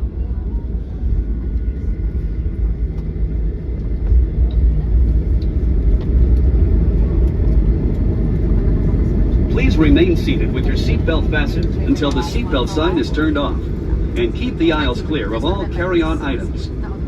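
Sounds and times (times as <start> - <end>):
aircraft cabin low rumble: 0.0 - 17.0.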